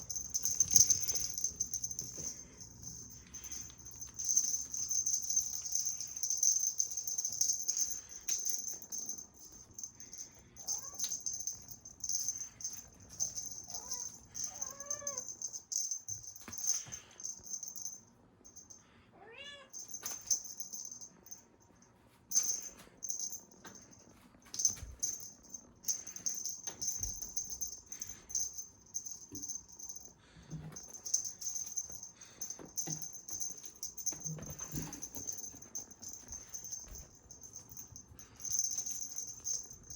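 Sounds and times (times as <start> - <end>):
cat toy rattling: 0.0 - 18.6, 22.3 - 39.9
cat meowing: 19.2 - 19.8.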